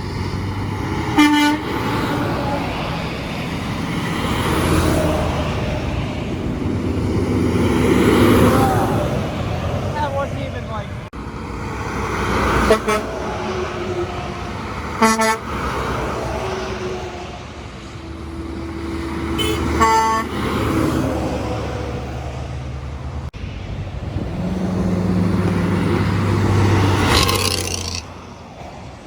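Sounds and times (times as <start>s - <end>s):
passing road traffic: 0.0s - 29.0s
truck engine drone: 0.0s - 29.0s
truck air horn blasts: 1.1s - 2.2s, 12.5s - 13.3s, 14.9s - 15.7s, 18.1s - 21.0s.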